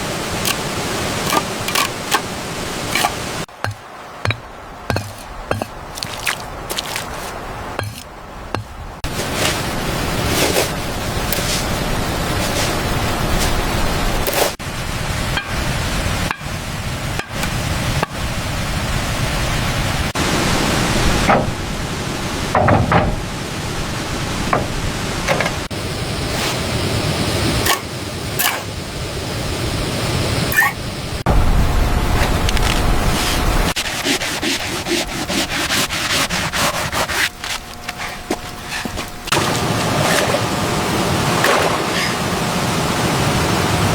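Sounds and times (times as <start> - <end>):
steady rushing hiss: 0.0 - 43.9
rubbing strokes on a surface: 9.1 - 13.6, 33.1 - 39.2.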